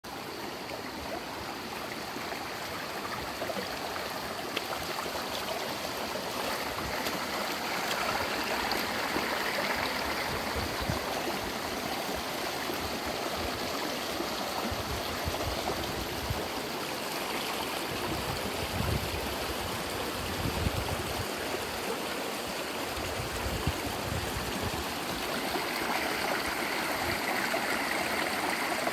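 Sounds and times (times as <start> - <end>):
stream water burbling: 0.0 - 28.9.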